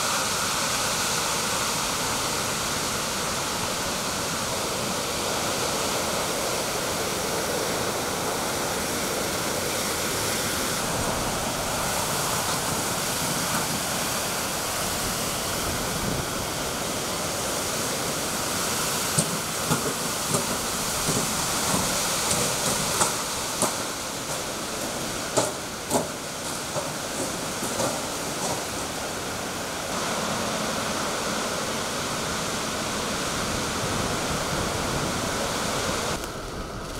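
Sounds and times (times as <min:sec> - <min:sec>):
rain: 0:00.0 - 0:36.9
strong wind: 0:00.0 - 0:36.9
sharp taps and knocks: 0:19.2 - 0:24.5, 0:25.4 - 0:28.7.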